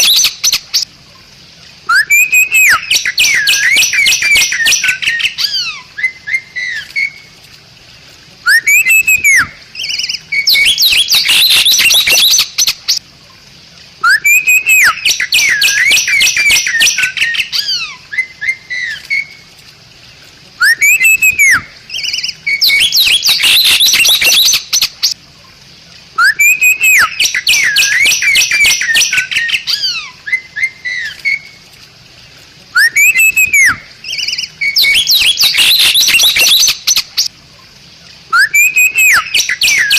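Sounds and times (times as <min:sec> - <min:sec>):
bird whistling and chattering: 0:00.0 - 0:00.6, 0:01.9 - 0:07.2, 0:08.5 - 0:13.0, 0:14.0 - 0:19.3, 0:20.6 - 0:25.2, 0:26.2 - 0:31.4, 0:32.8 - 0:37.3, 0:38.3 - 0:39.9.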